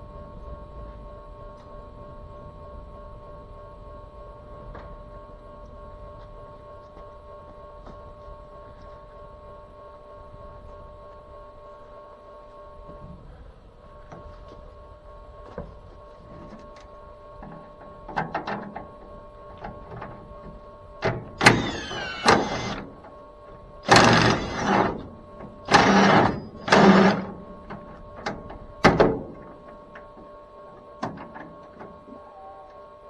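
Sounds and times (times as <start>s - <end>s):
faint steady hum: 0.0s - 33.0s
power tool bursts: 21.4s - 23.0s, 23.8s - 27.4s.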